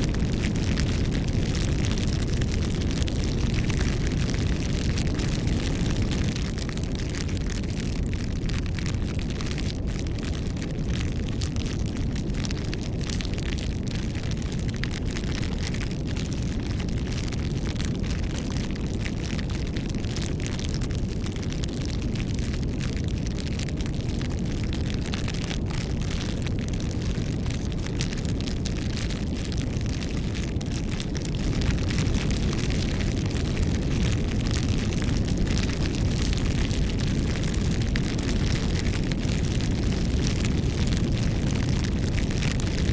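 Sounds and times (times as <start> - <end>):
low rumble of flame: 0.0 - 42.9
wood fire crackling and popping: 0.0 - 42.9.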